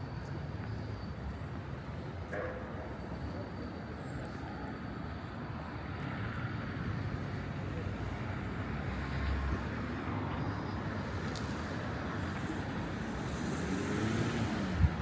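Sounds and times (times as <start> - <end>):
traffic noise with low rumble: 0.0 - 15.0.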